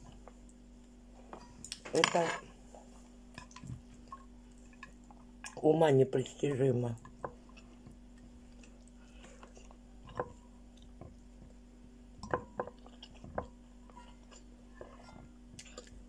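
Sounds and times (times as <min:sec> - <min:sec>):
person chewing wetly: 0:03.3 - 0:05.6, 0:07.0 - 0:16.0.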